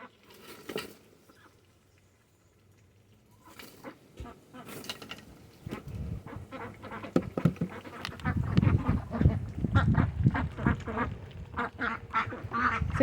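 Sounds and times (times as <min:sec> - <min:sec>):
ducks quacking: 0:03.4 - 0:04.8, 0:05.6 - 0:13.0
ducks' bills clattering: 0:03.4 - 0:13.0.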